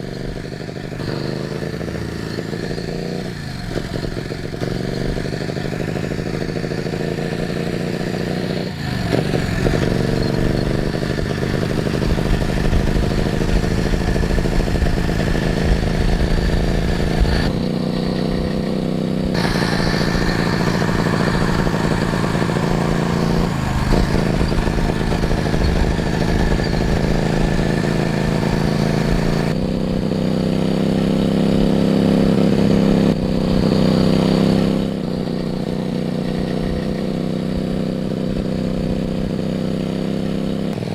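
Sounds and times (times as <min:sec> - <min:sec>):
engine running and revving: 0:00.0 - 0:40.9.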